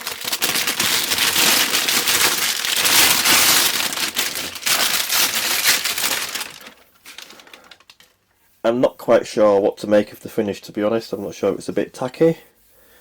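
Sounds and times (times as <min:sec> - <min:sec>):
packaging crinkling and crackling: 0:00.0 - 0:08.2.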